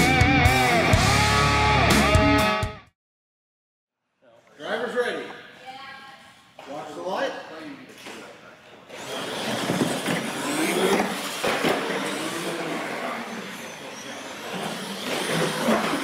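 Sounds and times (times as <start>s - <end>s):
toy truck motors whining: 8.9s - 16.0s
tyres rushing on concrete: 9.0s - 16.0s.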